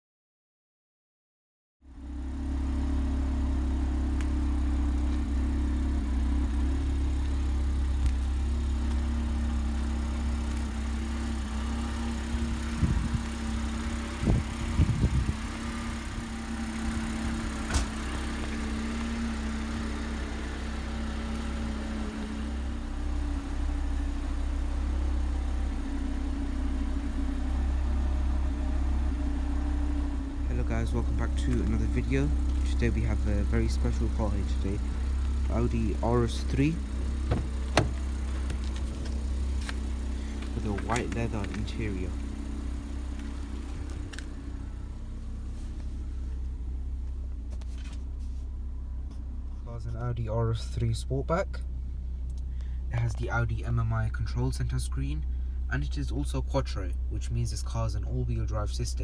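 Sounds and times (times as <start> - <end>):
car engine idling: 1.9 - 59.0
knocks: 37.2 - 38.6.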